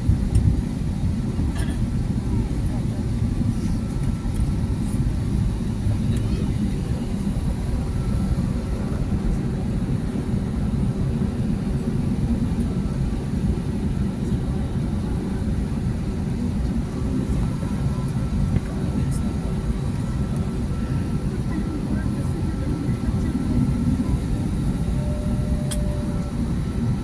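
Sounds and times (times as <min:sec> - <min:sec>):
airliner cabin engine drone: 0:00.0 - 0:27.0
faint constant hum: 0:00.0 - 0:27.0.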